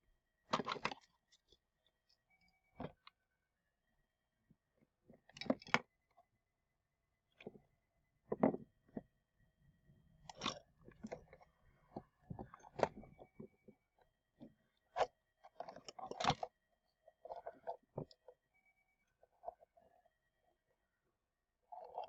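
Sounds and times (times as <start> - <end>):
hands clicking and scraping toy parts: 0.5 - 1.1, 14.9 - 16.5, 21.7 - 22.0.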